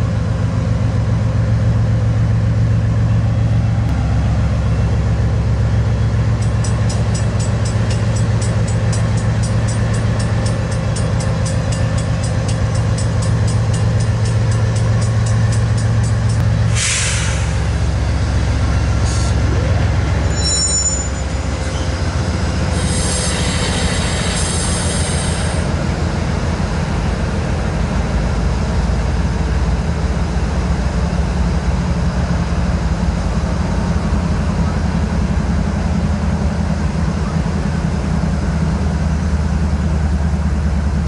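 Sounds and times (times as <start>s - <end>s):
diesel locomotive engine: 0.0s - 41.0s
train rolling by: 0.0s - 41.0s
wheel squeal: 19.0s - 25.1s.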